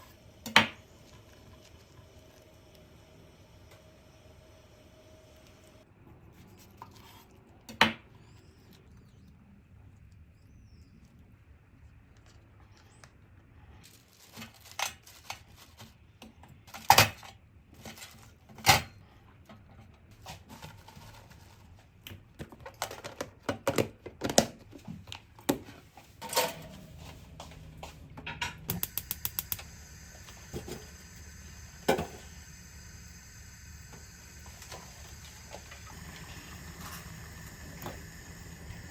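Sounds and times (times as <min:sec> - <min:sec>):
utensils and dishes clattering: 0:26.2 - 0:27.1
rapid clicks: 0:28.7 - 0:29.7.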